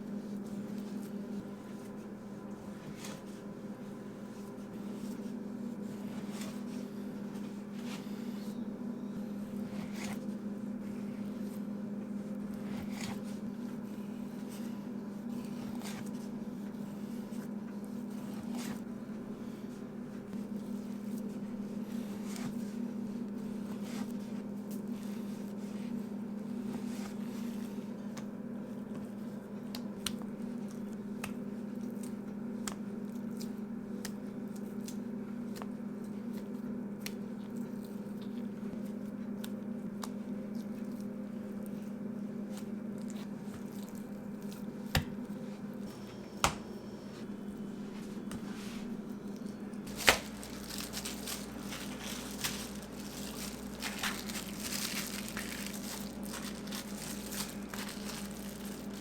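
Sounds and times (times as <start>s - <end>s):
rustling crinkling noise: 0.1s - 8.4s, 47.1s - 59.0s.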